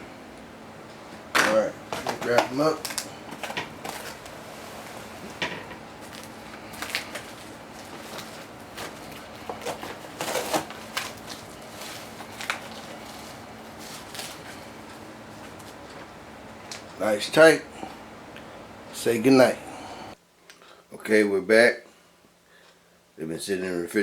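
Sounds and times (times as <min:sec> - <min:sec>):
faint steady hum: 0:00.0 - 0:24.0
wrapping crinkling and rustling: 0:02.0 - 0:16.0.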